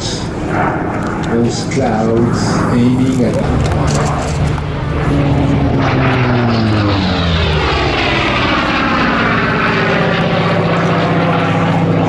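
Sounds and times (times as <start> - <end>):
propeller plane passing fast: 0.0 - 12.0.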